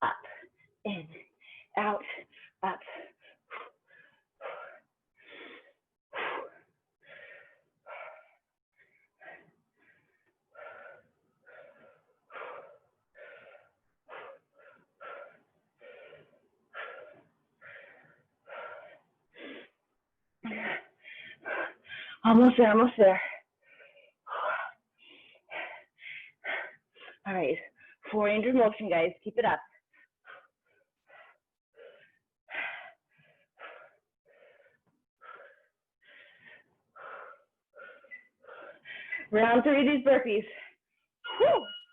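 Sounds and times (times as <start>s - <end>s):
person panting hard: 1.4s - 19.8s, 20.5s - 22.2s, 23.2s - 28.0s, 29.9s - 39.3s.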